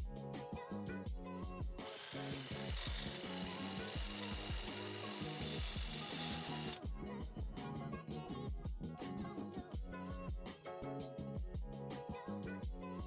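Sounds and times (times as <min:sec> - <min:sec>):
power tool scouring metal: 0:01.9 - 0:06.8.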